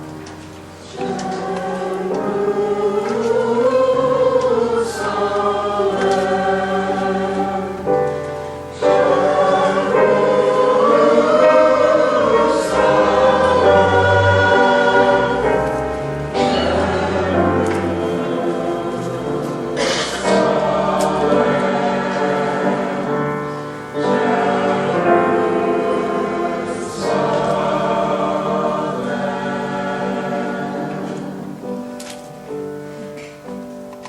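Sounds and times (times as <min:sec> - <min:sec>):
choir singing slowly: 0:00.0 - 0:34.0.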